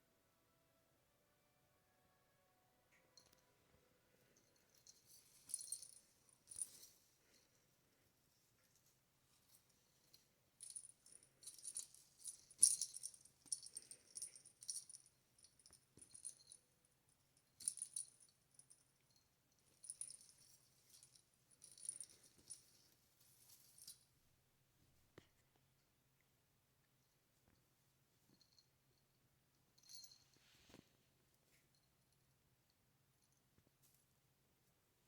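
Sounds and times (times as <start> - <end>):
decorations jingling and rattling: 4.2 - 24.2, 28.3 - 30.6.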